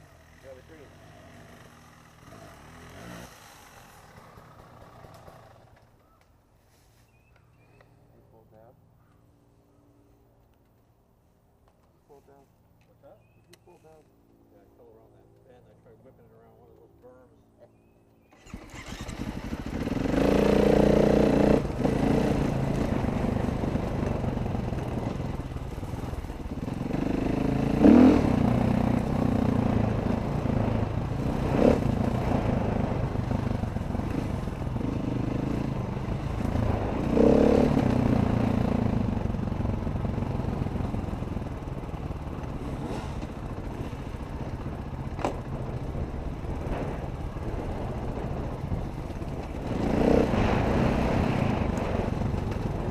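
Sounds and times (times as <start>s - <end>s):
dirt bike engine revving: 0.0s - 5.8s, 18.3s - 52.9s
bike knocking over rough ground: 45.1s - 45.6s.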